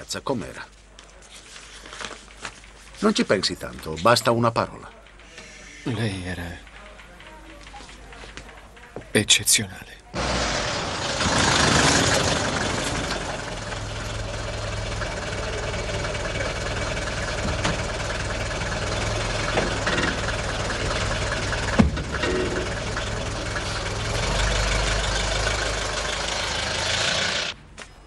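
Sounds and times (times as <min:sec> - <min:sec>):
car engine idling: 0:06.0 - 0:27.6
engine knock: 0:10.2 - 0:27.6.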